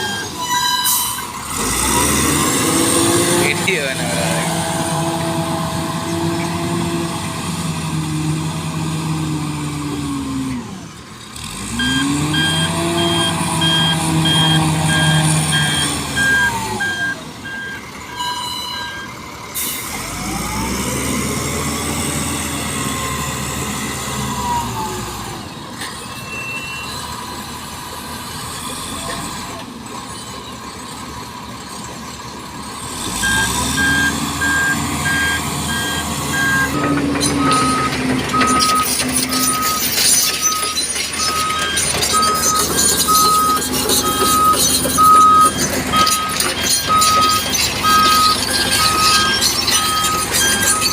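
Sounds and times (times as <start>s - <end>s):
reversing alarm beeping: 0.0s - 1.3s, 11.8s - 19.8s, 33.2s - 50.9s
diesel engine revving: 0.0s - 26.1s, 26.9s - 50.9s.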